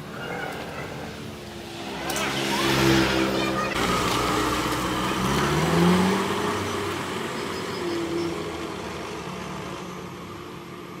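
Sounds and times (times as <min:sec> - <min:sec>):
pickup engine revving: 0:02.1 - 0:09.7.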